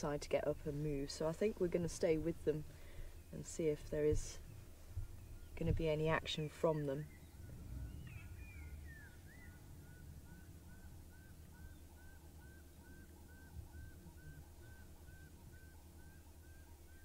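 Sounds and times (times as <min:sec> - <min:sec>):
bird whistling: 0:07.1 - 0:17.0.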